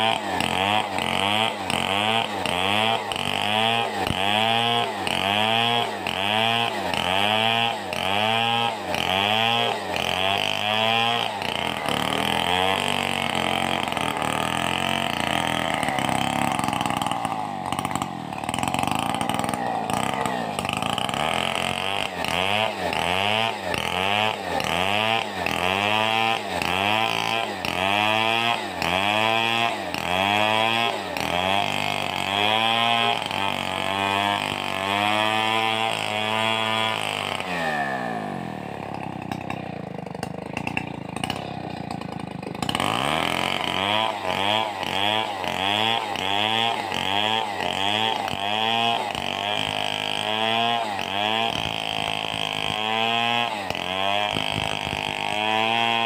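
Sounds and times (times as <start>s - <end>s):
chainsaw cutting: 0.0s - 56.0s.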